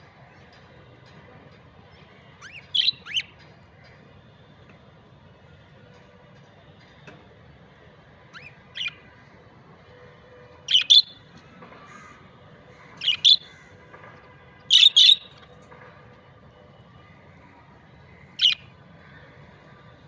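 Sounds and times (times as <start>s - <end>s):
budgerigar chirping: 2.6s - 3.3s, 10.7s - 11.2s, 13.0s - 13.5s, 14.7s - 15.3s.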